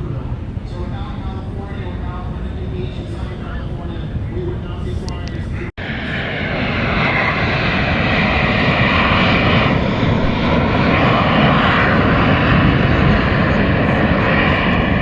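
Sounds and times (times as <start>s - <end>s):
aircraft engine flying past: 0.0s - 15.0s.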